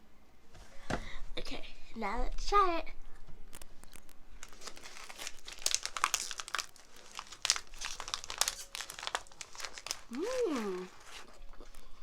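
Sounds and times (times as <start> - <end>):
plastic packaging crinkling: 3.5 - 12.0.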